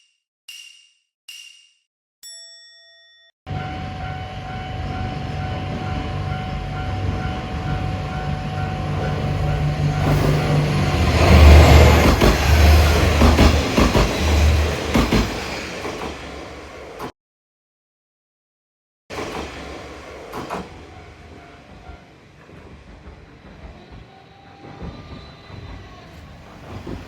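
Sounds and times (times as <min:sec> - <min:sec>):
level crossing warning bell: 0:02.3 - 0:12.0
diesel railcar engine: 0:03.5 - 0:17.1, 0:19.1 - 0:27.0
wheels clacking over rail joints: 0:04.0 - 0:17.1, 0:19.1 - 0:27.0.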